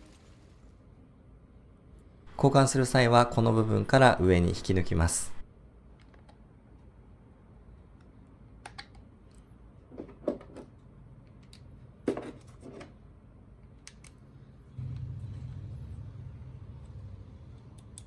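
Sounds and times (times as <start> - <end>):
low steady hum: 14.2 - 18.0.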